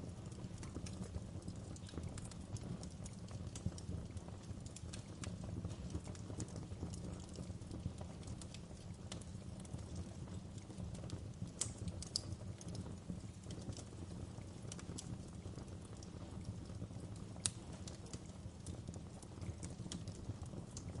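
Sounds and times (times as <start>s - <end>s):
wood fire crackling: 0.0s - 21.0s
sharp pops and snaps: 0.6s - 9.8s, 11.0s - 13.9s, 17.2s - 21.0s.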